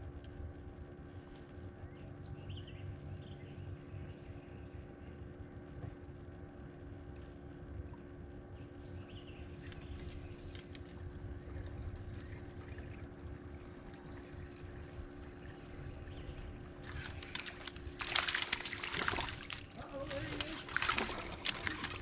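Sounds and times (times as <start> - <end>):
rumble of water and wind: 0.0 - 22.0
water splashing and sloshing: 5.5 - 22.0.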